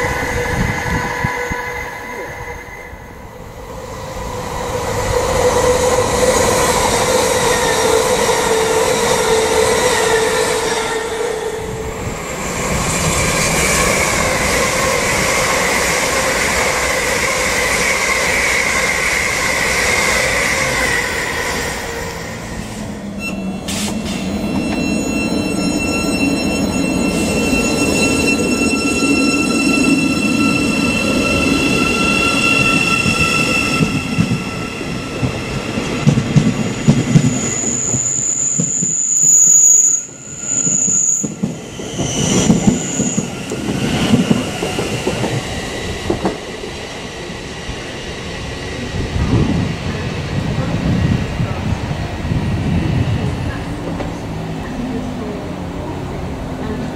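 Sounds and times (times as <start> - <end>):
train wheels squealing: 0.0 - 50.3
electric train passing with hum: 0.0 - 56.9
electric train whining: 0.0 - 56.9.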